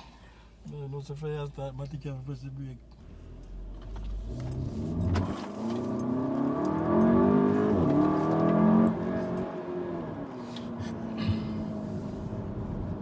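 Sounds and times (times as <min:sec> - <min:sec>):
car engine accelerating: 0:03.0 - 0:13.0.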